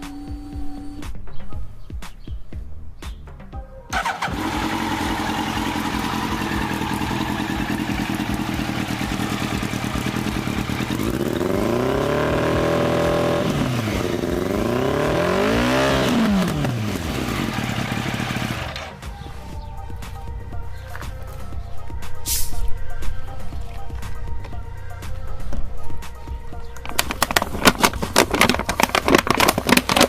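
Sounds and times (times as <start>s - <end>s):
motorcycle engine revving: 3.9s - 19.7s
motorcycle engine idling: 3.9s - 22.0s.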